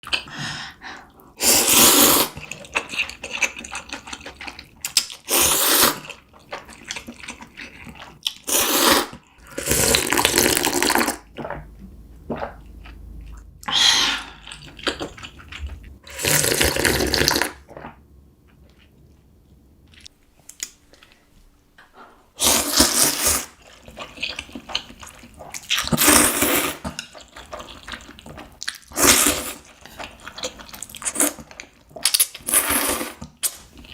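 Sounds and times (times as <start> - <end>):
slurping noodles: 1.4 - 3.6, 5.2 - 11.6, 12.3 - 18.0, 22.4 - 24.2, 25.1 - 26.9, 28.9 - 30.2, 32.4 - 33.9
soft chewing: 6.0 - 8.5, 11.2 - 16.0.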